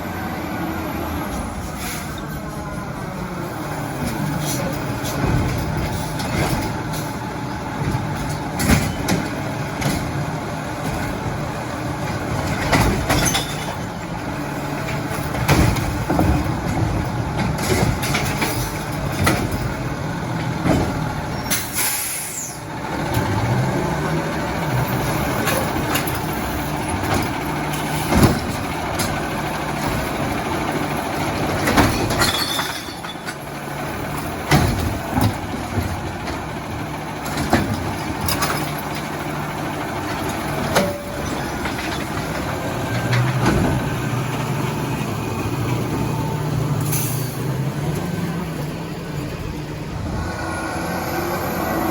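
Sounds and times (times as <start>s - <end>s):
diesel truck engine running: 0.0s - 51.9s
air brakes hissing: 1.6s - 2.6s, 21.4s - 22.7s, 46.8s - 47.6s
metal knocks and clanks: 4.0s - 14.1s, 14.7s - 21.8s, 25.2s - 39.3s, 39.9s - 44.4s.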